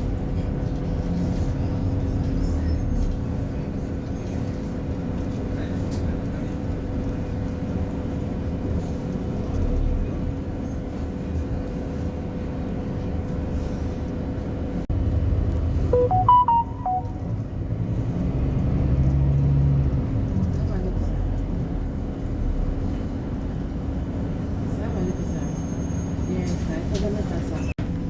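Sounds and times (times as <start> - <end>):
bus engine drone: 0.0 - 28.0
short electronic beeps: 16.0 - 17.3.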